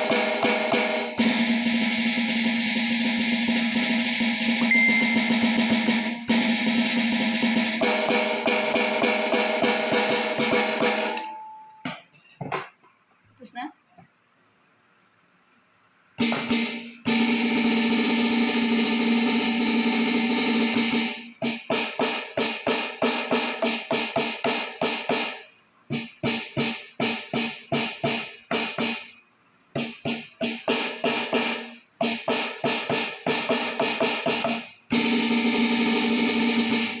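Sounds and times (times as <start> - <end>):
electronic snare pad hits: 0.0 - 12.0, 16.2 - 37.0
held electronic tone: 4.3 - 6.7.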